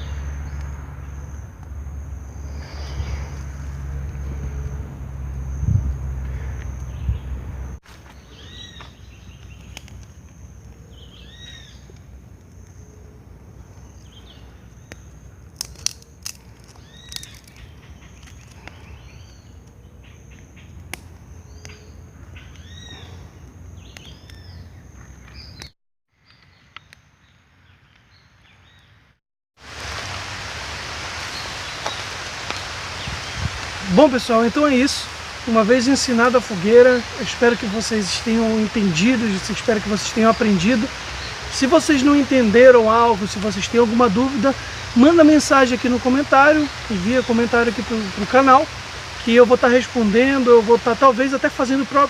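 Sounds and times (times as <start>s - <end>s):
bird calling: 0.0s - 1.4s, 2.3s - 4.8s, 6.2s - 12.0s, 16.7s - 25.7s, 31.2s - 52.0s
constant high whine: 0.0s - 19.0s, 29.6s - 52.0s
loud rushing hiss: 2.2s - 4.8s, 29.6s - 52.0s
faint steady hiss: 29.6s - 52.0s.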